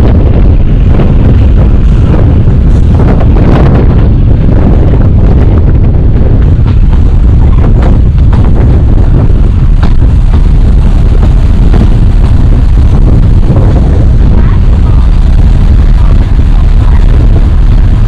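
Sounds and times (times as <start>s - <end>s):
train rumbling: 0.0s - 18.0s
wind buffeting microphone: 0.0s - 18.0s.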